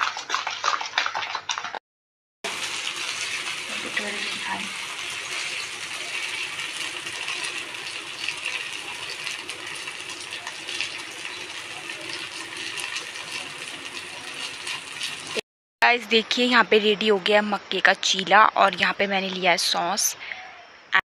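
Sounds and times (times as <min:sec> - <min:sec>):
batter sizzling in oil: 0:02.4 - 0:15.4.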